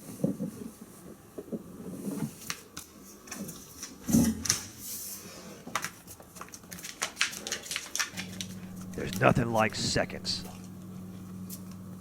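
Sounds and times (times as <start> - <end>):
dog eating clicks and knocks: 5.8 - 8.5.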